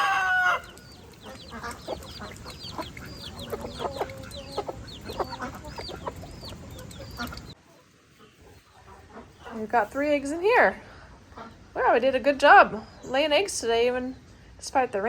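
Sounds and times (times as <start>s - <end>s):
chicks peeping: 0.0s - 9.8s
hens clucking: 0.0s - 10.5s.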